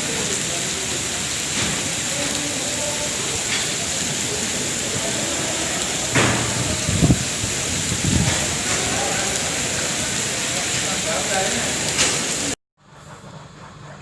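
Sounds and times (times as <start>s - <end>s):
faint voices: 0.0s - 12.5s
steady rain: 0.0s - 12.6s
low knocks: 6.2s - 7.5s.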